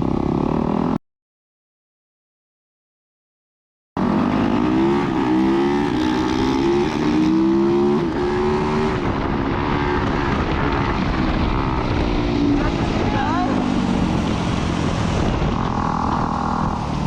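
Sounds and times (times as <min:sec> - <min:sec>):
dirt bike engine revving: 0:04.0 - 0:17.0.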